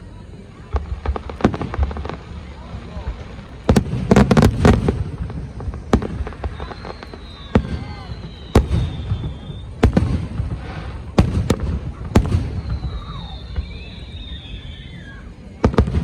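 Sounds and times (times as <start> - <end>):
fireworks bangs: 0.3 - 16.0
high thin whistle: 6.2 - 9.8, 12.4 - 15.4.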